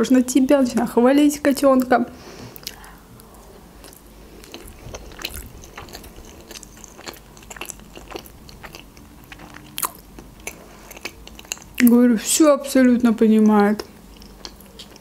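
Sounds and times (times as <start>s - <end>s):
person chewing with wet mouth clicks: 2.6s - 11.9s, 13.8s - 15.0s.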